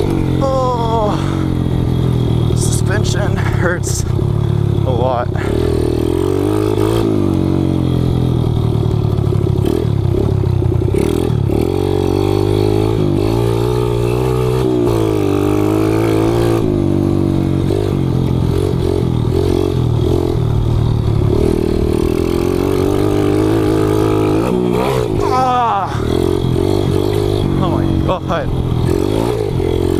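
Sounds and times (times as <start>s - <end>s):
motorbike engine revving: 0.0s - 29.9s.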